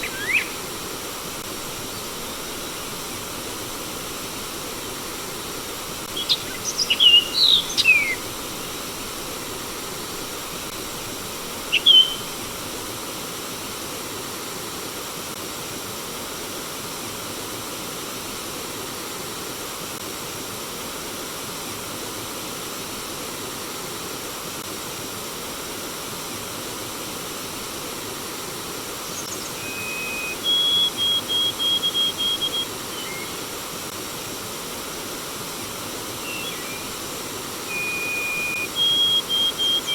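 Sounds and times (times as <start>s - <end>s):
songbird chirps: 0.0s - 12.9s, 29.1s - 33.5s, 36.1s - 39.9s
flowing water rushing: 0.0s - 15.5s, 25.0s - 39.9s.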